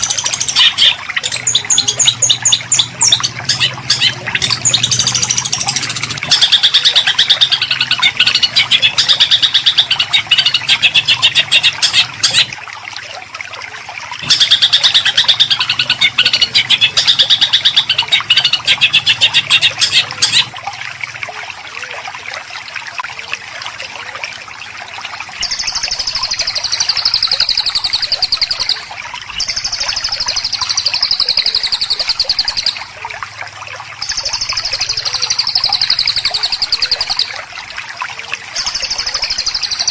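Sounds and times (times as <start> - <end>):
songbird harsh repeated notes: 0.0 - 12.6.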